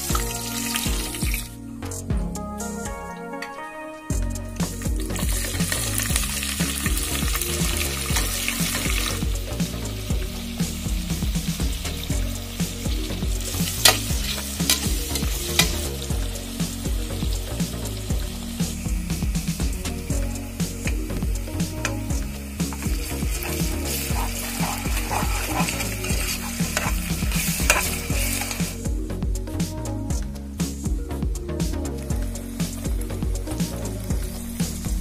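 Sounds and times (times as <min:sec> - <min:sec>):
onions sizzling in hot oil: 0:00.0 - 0:01.5, 0:04.7 - 0:29.0, 0:32.2 - 0:35.0
spatula clicking against pot: 0:22.7 - 0:28.6.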